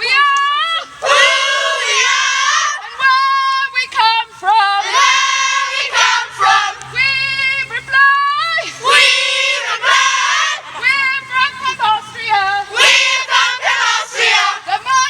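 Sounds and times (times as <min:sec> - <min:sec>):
children singing: 0:00.8 - 0:03.2, 0:03.9 - 0:07.6, 0:08.6 - 0:11.1, 0:11.7 - 0:15.0.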